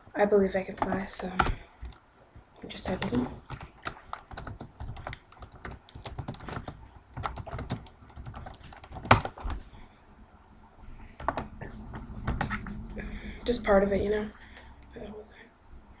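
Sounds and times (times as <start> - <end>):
keyboard typing clicks: 2.9 - 9.6.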